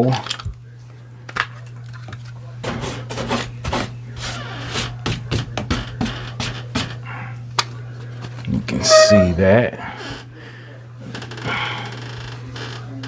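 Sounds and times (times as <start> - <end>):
scraping on wooden door: 2.6 - 7.2, 8.2 - 10.3.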